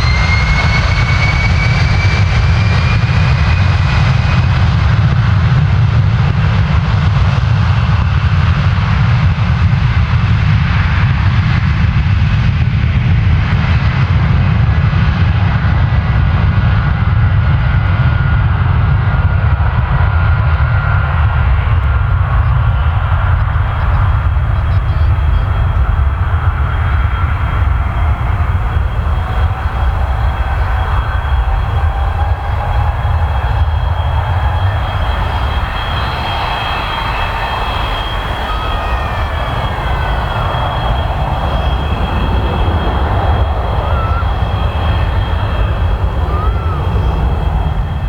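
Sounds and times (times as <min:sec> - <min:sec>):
jet engine rumble: 0:00.0 - 0:48.0
thin whining tone: 0:21.8 - 0:48.0.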